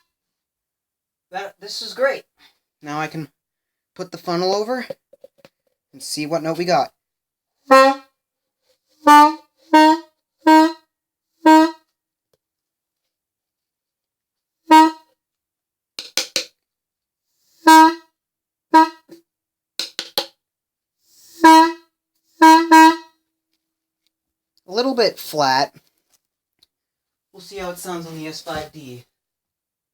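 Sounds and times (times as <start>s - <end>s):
air horn toots: 7.7s - 8.1s, 9.0s - 11.9s, 14.7s - 15.1s, 17.6s - 18.1s, 18.7s - 19.2s, 21.3s - 23.2s.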